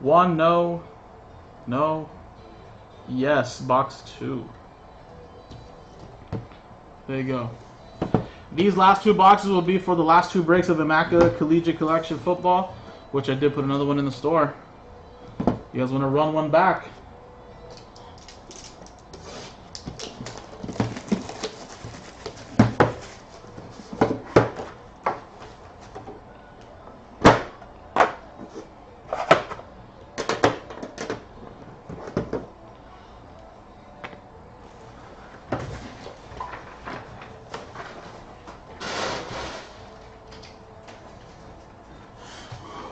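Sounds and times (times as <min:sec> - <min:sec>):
wrapping rustling: 0:18.0 - 0:23.9.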